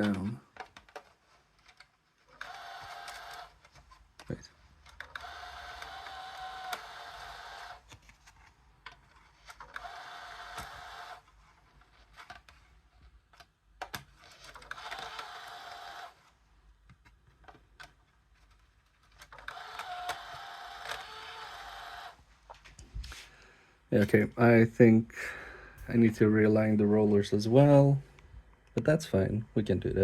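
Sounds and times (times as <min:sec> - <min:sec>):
disc drive motor whirring: 0:02.3 - 0:03.7, 0:04.9 - 0:08.0, 0:09.3 - 0:11.3, 0:14.2 - 0:16.4, 0:19.2 - 0:22.2
disc drive clicks: 0:08.9 - 0:11.2, 0:19.2 - 0:22.2.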